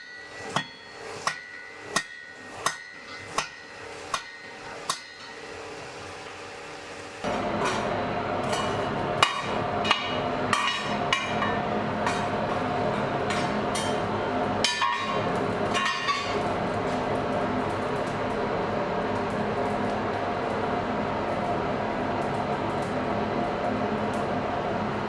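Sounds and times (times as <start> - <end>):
forge air blower humming: 0.0 - 25.0.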